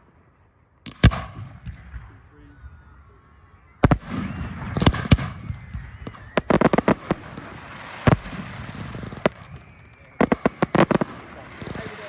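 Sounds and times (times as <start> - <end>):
fireworks bangs: 3.8 - 12.0.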